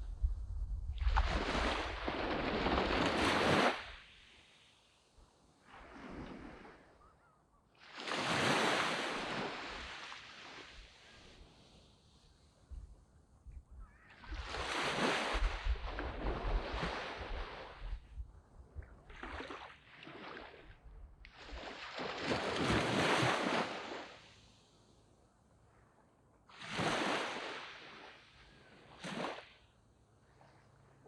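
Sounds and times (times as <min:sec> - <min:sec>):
waves breaking on beach: 0:01.0 - 0:12.7, 0:13.9 - 0:18.1, 0:18.9 - 0:25.1, 0:26.5 - 0:31.0.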